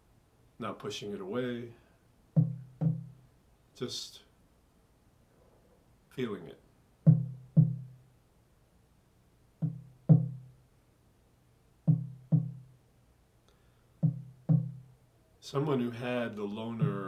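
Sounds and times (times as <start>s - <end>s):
low drum double beats: 2.4s - 3.2s, 7.1s - 8.0s, 9.6s - 10.5s, 11.9s - 12.7s, 14.0s - 14.9s, 16.8s - 17.0s.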